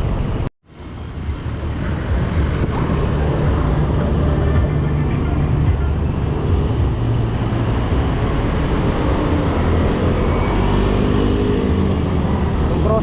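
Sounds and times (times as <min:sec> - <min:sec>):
engine drone: 0:00.0 - 0:13.0
low traffic rumble: 0:00.0 - 0:13.0
vehicle engines running: 0:00.0 - 0:13.0.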